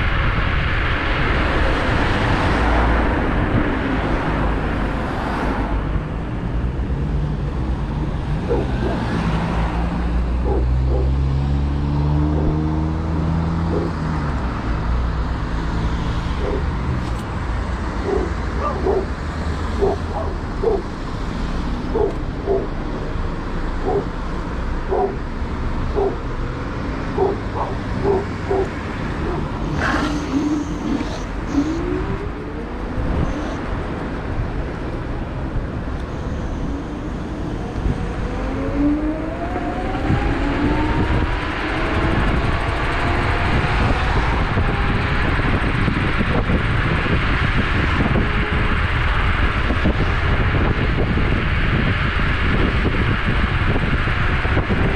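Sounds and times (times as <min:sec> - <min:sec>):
wind rumble on microphone: 0:00.0 - 0:54.9
dog barking: 0:08.4 - 0:09.1, 0:10.4 - 0:11.2, 0:18.0 - 0:19.2, 0:19.8 - 0:20.9, 0:21.9 - 0:22.7, 0:23.8 - 0:24.1, 0:24.9 - 0:25.2, 0:26.0 - 0:26.2, 0:27.1 - 0:29.5.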